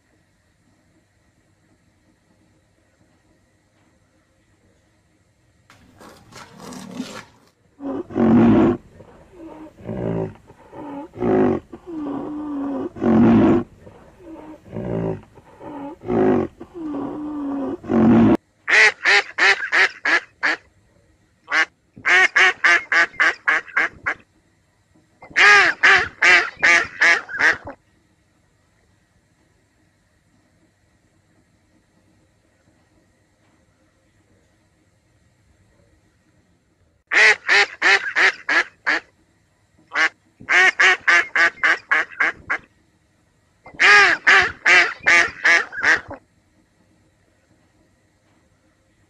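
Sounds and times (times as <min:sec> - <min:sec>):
low-pitched animal calls: 0:07.8 - 0:18.4
duck quacks: 0:18.7 - 0:20.7, 0:21.5 - 0:24.2, 0:25.2 - 0:27.8, 0:37.1 - 0:39.1, 0:39.9 - 0:42.7, 0:43.7 - 0:46.2.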